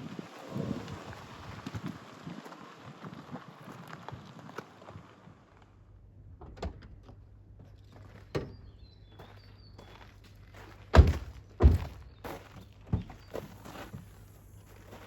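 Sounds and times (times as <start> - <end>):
dull thuds: 11.0 - 12.1.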